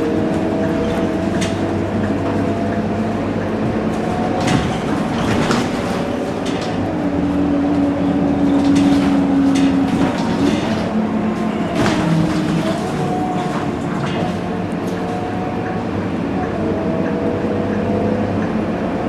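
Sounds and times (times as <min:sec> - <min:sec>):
bus engine running: 0:00.0 - 0:19.0
knocks and rattles: 0:03.6 - 0:06.9, 0:07.7 - 0:15.0.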